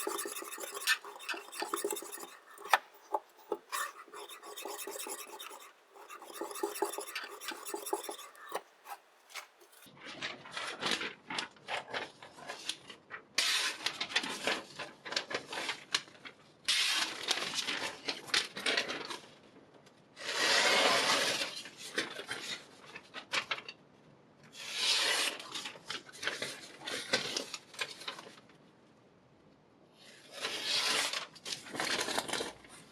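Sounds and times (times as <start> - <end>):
knife blade rasping: 0.0 - 9.9.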